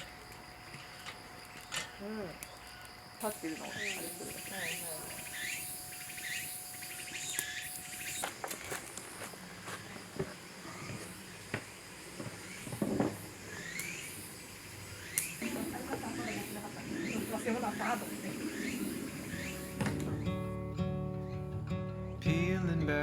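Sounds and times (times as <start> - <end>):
insects droning and chirping: 0.0 - 22.7
steady hum: 2.9 - 20.8
short rising calls: 3.2 - 8.4, 12.4 - 20.6.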